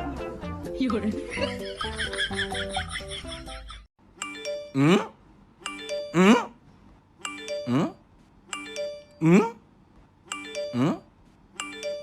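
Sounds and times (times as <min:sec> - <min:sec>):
music: 0:00.0 - 0:03.7
ding-dong chime: 0:04.2 - 0:04.8, 0:05.7 - 0:06.3, 0:07.2 - 0:07.9, 0:08.6 - 0:09.2, 0:10.3 - 0:10.9, 0:11.6 - 0:12.0.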